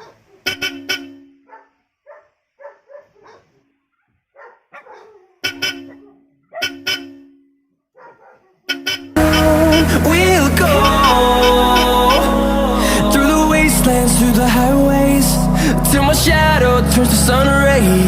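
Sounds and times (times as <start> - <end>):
dog barking: 0.0 - 0.6, 1.5 - 3.7, 4.3 - 6.8, 8.0 - 8.7
electric horn toots: 8.8 - 18.0.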